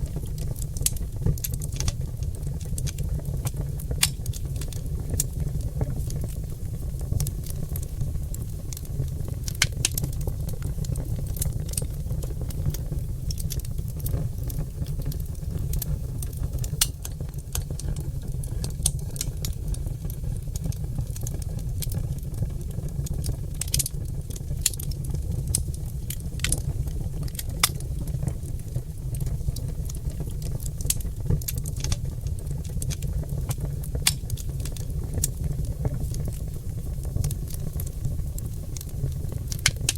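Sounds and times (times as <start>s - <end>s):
log fire crackling and popping: 0.0s - 39.9s.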